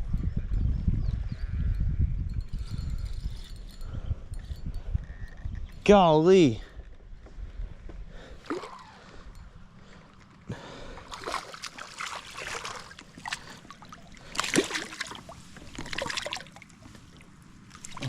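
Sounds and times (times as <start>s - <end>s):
water splashing and dribbling: 10.9s - 18.0s.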